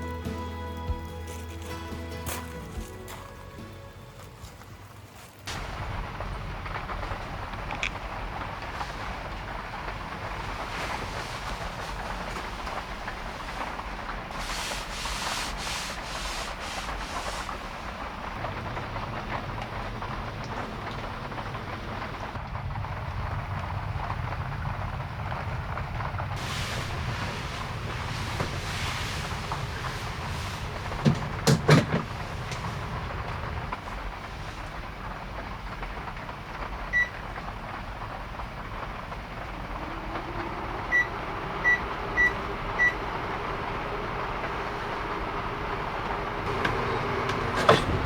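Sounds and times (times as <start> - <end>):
road and tyre noise: 0.0 - 48.0
heavy rain: 5.2 - 48.0
hiss: 5.5 - 18.5, 26.4 - 35.3.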